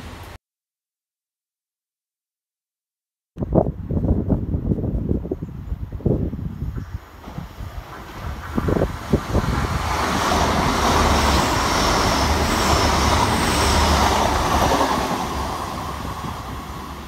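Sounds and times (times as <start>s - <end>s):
train passing: 6.4s - 17.0s.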